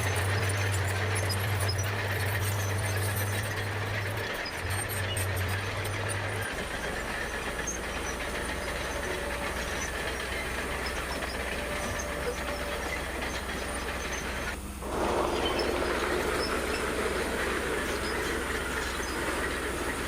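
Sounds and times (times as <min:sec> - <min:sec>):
bulldozer diesel engine running: 0:00.0 - 0:20.0
steel tracks clattering: 0:00.0 - 0:20.0.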